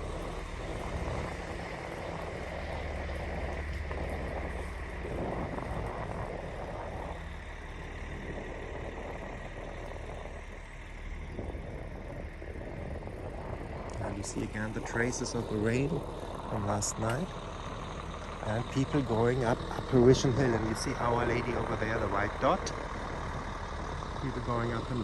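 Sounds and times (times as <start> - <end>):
coach engine humming: 0.0 - 25.0.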